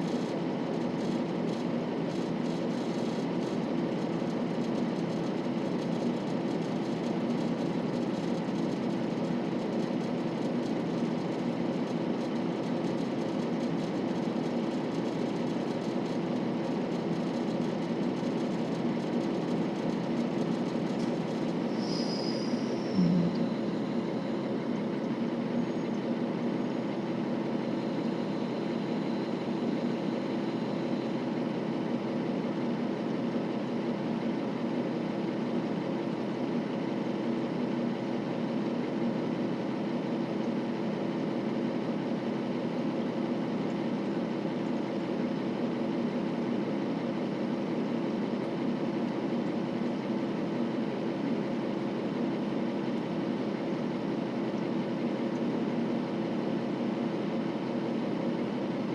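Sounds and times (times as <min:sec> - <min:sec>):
railcar diesel engine idling: 0:21.4 - 0:25.7.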